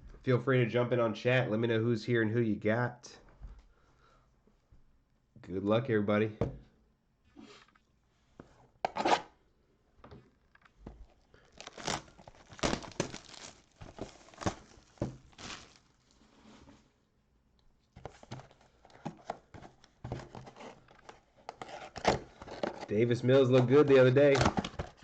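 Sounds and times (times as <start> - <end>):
plastic wrapping crinkling: 11.0 - 16.3.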